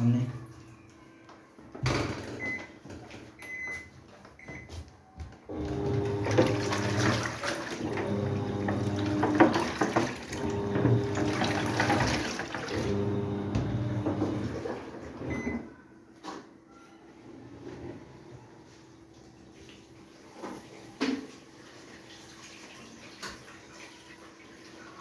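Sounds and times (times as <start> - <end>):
washing machine beeps: 1.9 - 4.8, 5.5 - 14.6, 15.2 - 15.9
washing machine motor humming: 5.5 - 15.7.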